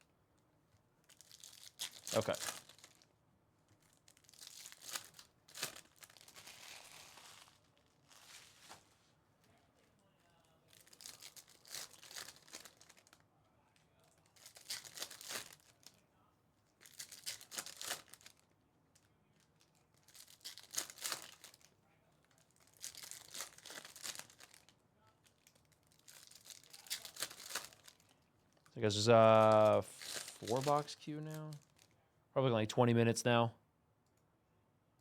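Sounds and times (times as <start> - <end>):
foil wrappers tearing: 1.1 - 3.0, 3.8 - 8.9, 10.7 - 13.2, 14.3 - 15.9, 16.8 - 18.4, 19.9 - 21.7, 22.4 - 24.7, 25.3 - 28.2, 29.0 - 31.9.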